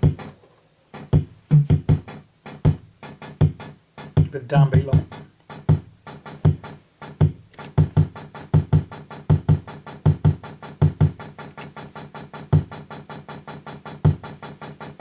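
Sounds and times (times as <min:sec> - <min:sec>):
rapid hi-hat ticks: 0:00.0 - 0:15.0
deep thudding bass drum: 0:01.2 - 0:02.1.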